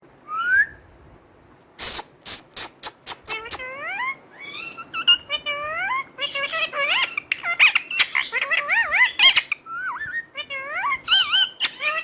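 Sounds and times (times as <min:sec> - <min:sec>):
parrot warbling calls: 0:03.2 - 0:12.0.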